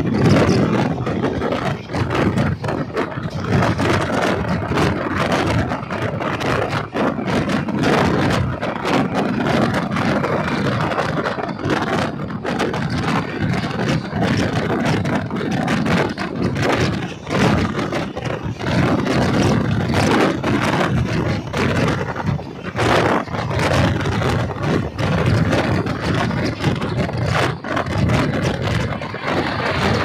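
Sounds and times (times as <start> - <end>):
train wheels clattering on rails: 0.0 - 30.0.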